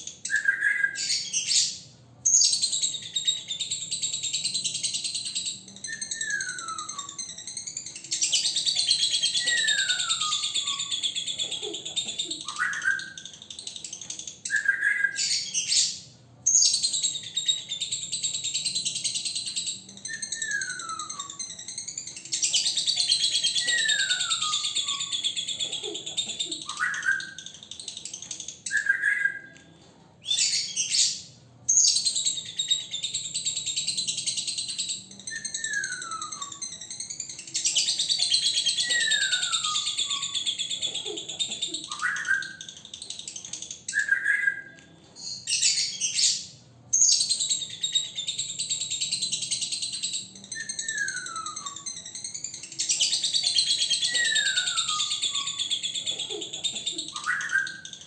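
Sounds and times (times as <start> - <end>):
lovebird chattering song: 0.0 - 29.6, 30.3 - 58.0.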